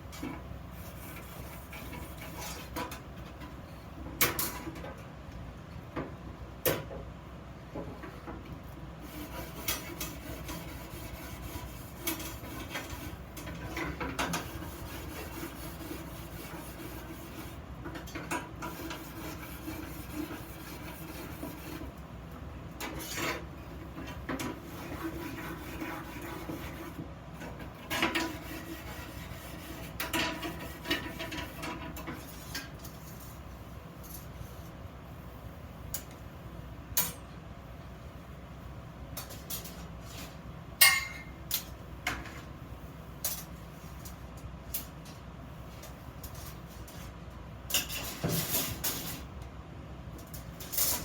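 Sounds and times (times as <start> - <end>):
scraping and rubbing on iron: 0.8 - 3.0, 9.0 - 22.0, 22.8 - 33.4.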